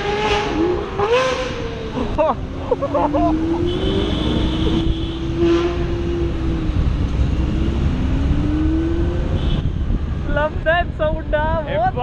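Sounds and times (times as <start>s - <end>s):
car engine revving: 0.0s - 10.3s.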